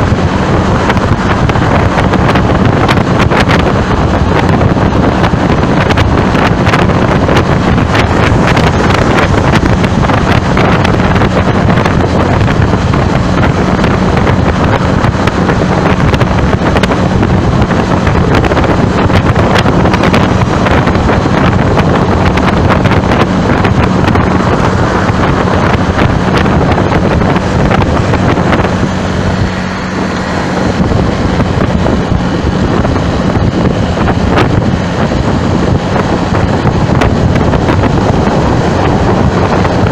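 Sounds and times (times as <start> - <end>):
vehicle hum: 0.0 - 39.9
wind noise on microphone: 0.0 - 39.9.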